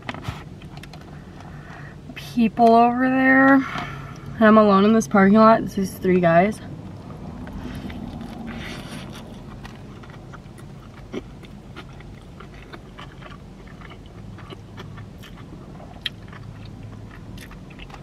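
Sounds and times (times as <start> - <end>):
low steady hum: 0.0 - 18.0
person chewing sandwich: 7.4 - 18.0.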